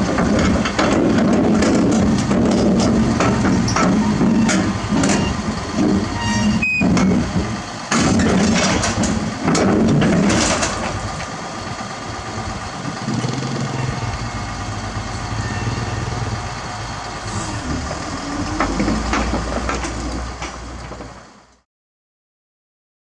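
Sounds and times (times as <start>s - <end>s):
diesel engine running: 0.0s - 21.6s.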